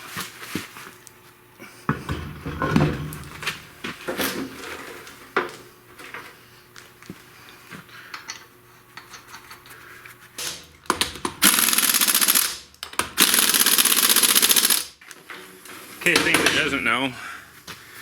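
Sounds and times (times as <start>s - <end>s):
pneumatic impact wrench hammering: 10.4s - 15.0s.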